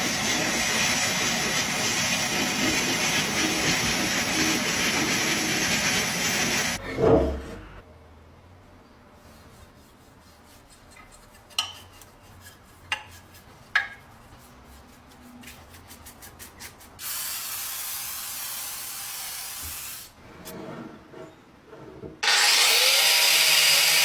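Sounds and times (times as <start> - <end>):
spray hissing: 17.0 - 20.1.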